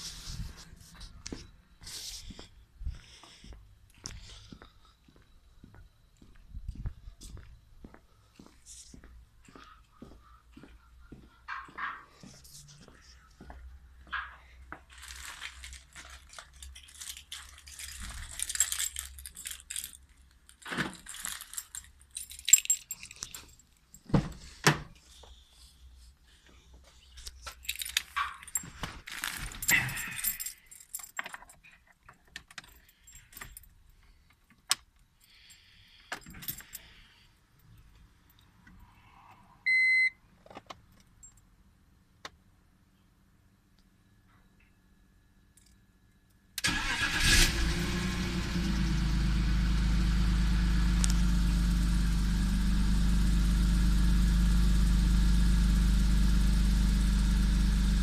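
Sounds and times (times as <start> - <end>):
car keys jangling: 15.0 - 24.1, 27.4 - 34.0, 36.1 - 37.0, 46.6 - 47.4.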